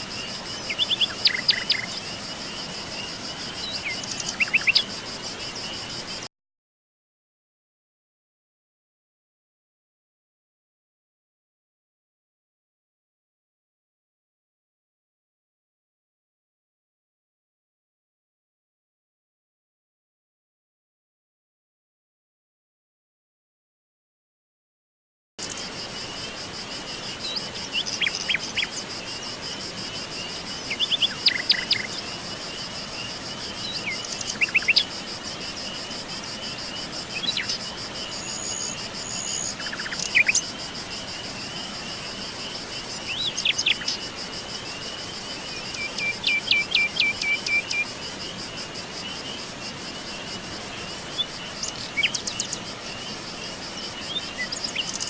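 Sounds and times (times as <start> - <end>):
high-pitched insect trill: 0.0 - 6.3, 25.4 - 55.0
birds chirping and calling: 0.6 - 2.1.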